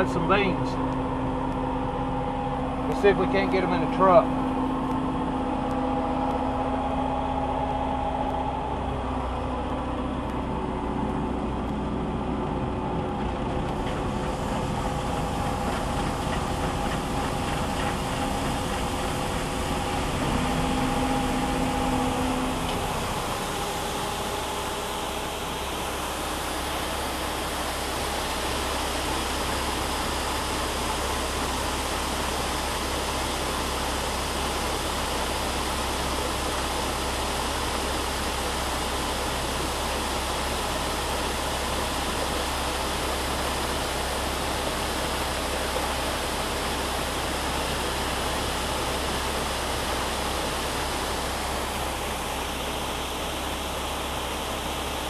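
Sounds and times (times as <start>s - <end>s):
combine harvester engine hum: 0.0s - 55.0s
steady rushing hiss: 13.0s - 55.0s.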